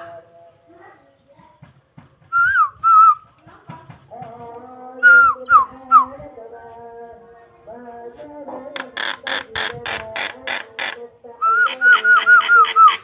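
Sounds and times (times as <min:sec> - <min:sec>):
starling whistling: 0:02.3 - 0:03.2, 0:05.0 - 0:06.2, 0:11.4 - 0:13.0.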